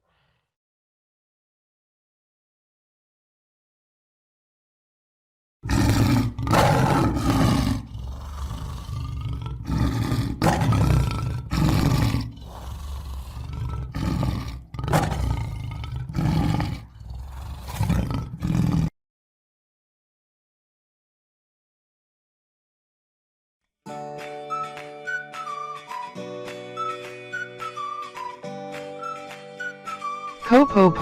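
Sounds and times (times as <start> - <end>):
lion growling: 5.6 - 18.9
lion roaring: 5.6 - 18.9.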